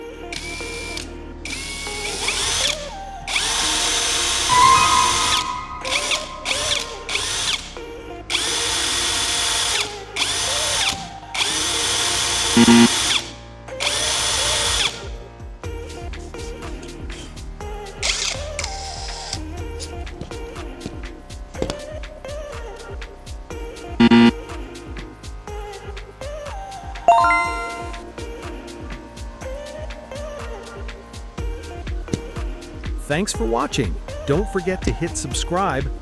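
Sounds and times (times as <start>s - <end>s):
electric drill running: 0.4s - 7.7s, 8.3s - 15.2s.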